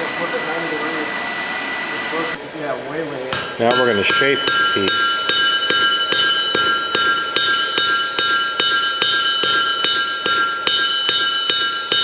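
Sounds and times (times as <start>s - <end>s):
anvil ringing: 3.3s - 12.0s
hammer striking steel on anvil: 3.3s - 12.0s.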